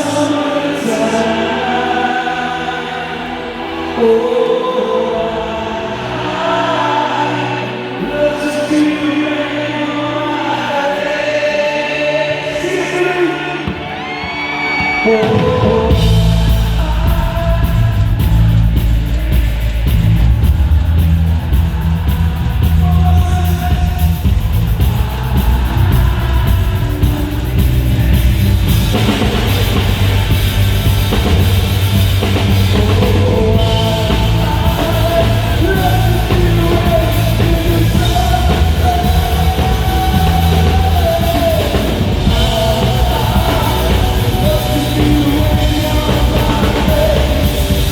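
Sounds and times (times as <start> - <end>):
person singing: 0.0 - 47.9
rock band playing: 12.1 - 47.9.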